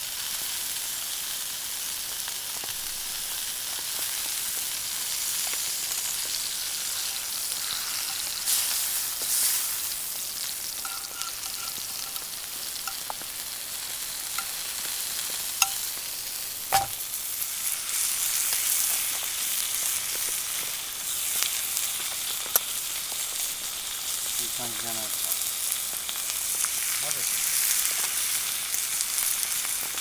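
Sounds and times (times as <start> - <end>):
food sizzling in a pan: 0.0 - 30.0
utensil clinking against pan: 10.8 - 13.2, 14.3 - 14.6, 15.6 - 15.9, 16.7 - 17.0.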